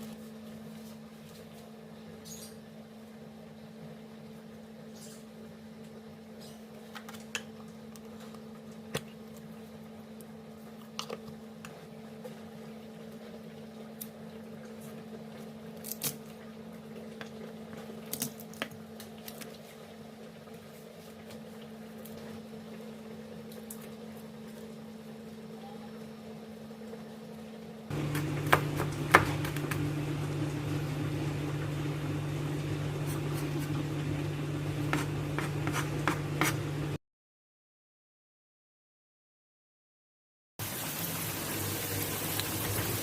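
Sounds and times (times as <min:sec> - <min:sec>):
steady low hum: 0:26.2 - 0:37.0.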